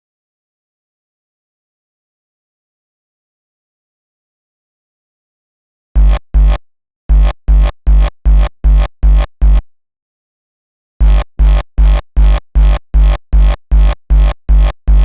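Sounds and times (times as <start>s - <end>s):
distorted kick drum: 6.0s - 9.6s, 11.0s - 15.0s.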